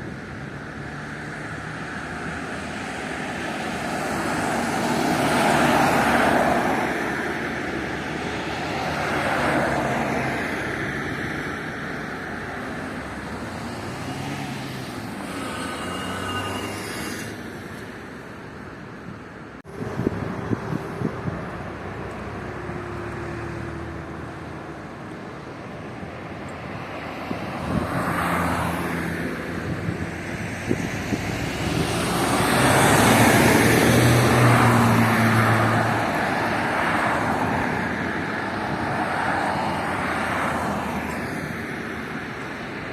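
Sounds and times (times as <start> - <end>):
cars driving past: 0.0 - 18.6, 19.6 - 42.9.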